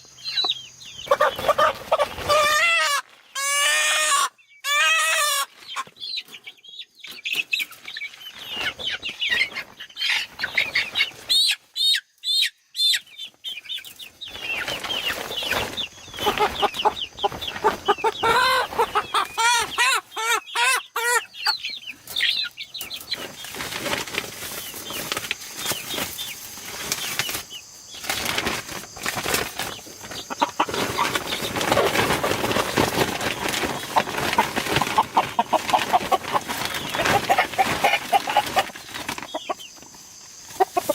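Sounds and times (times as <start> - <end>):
chickens clucking: 0.0 - 40.9
wings flapping: 23.1 - 39.8.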